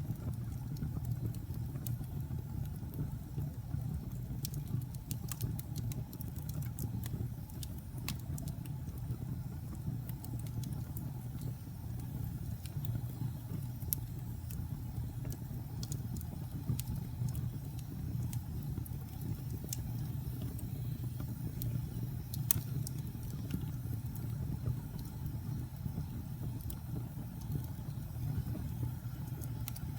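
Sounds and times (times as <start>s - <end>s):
wood fire crackling: 0.0s - 29.9s.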